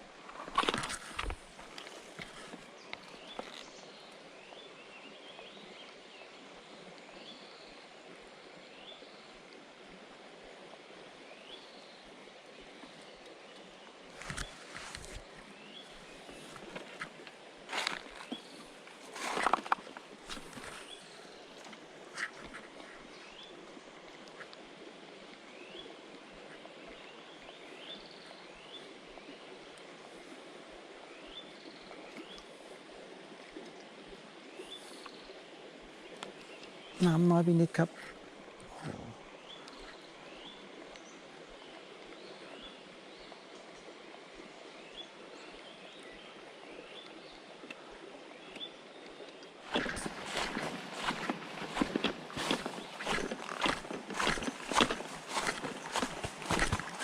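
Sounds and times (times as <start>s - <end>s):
stream rushing: 13.6s - 26.5s, 49.6s - 57.0s.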